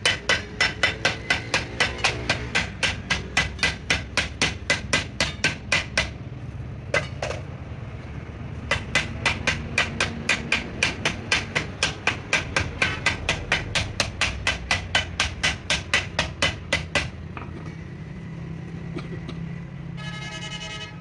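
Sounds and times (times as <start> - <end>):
hammer striking: 0.0 - 6.2, 8.6 - 17.8.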